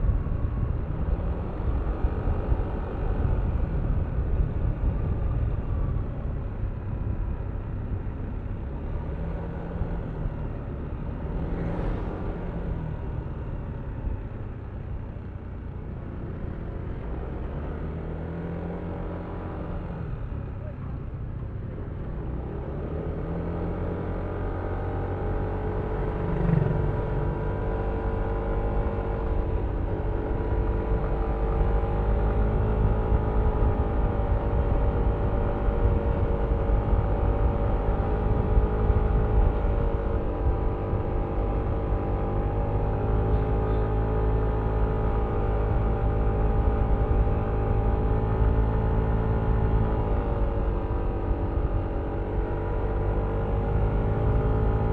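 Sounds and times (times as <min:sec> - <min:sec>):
wind rumble on microphone: 0:00.0 - 0:54.9
scooter engine running: 0:25.8 - 0:27.5.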